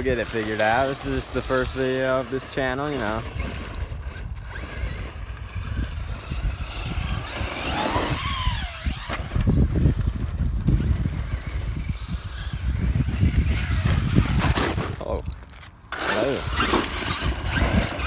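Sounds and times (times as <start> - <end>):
toy truck electric motor whining: 0.0 - 18.0
wind buffeting microphone: 0.0 - 18.0.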